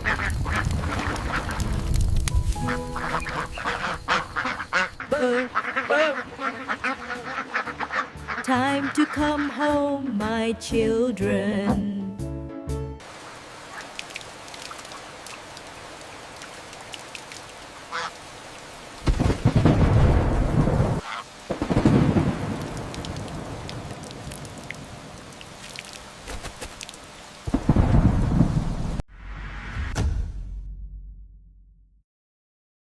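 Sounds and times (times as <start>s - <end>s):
thunder rumbling: 0.0s - 4.2s, 19.0s - 25.0s, 27.5s - 29.0s
steady rain: 0.0s - 7.9s, 13.0s - 29.0s
duck quacking: 2.6s - 9.8s, 21.0s - 21.3s.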